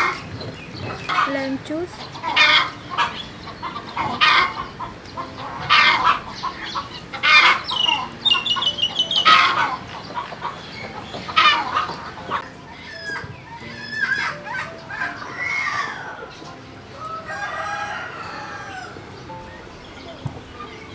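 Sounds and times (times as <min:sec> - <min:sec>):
chickens clucking: 0:00.0 - 0:20.9.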